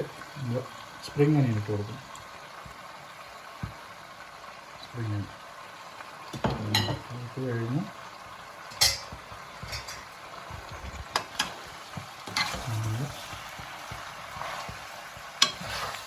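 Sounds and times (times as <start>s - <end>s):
food sizzling in a pan: 0.0s - 16.0s
spatula scraping a pan: 11.2s - 16.0s.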